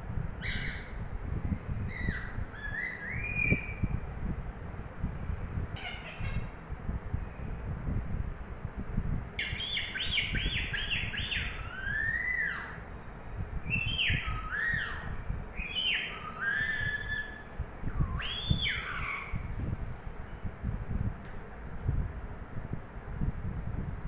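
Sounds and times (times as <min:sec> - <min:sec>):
parrot whistling calls: 0:01.9 - 0:03.9, 0:09.4 - 0:12.8, 0:13.7 - 0:19.4.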